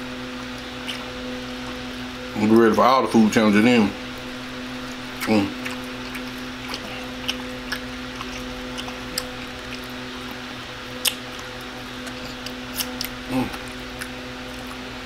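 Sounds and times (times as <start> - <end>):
steady low hum: 0.0 - 15.0
wet chewing smacks: 0.8 - 1.1, 4.8 - 14.9
person humming: 6.8 - 7.2, 13.3 - 13.7.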